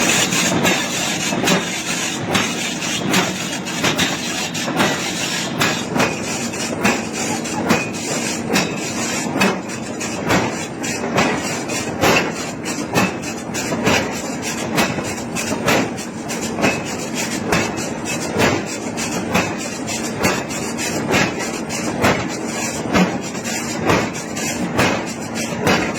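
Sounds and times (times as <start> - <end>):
shop machinery din: 0.0 - 25.9
hammer striking iron: 6.8 - 8.8, 9.4 - 9.7.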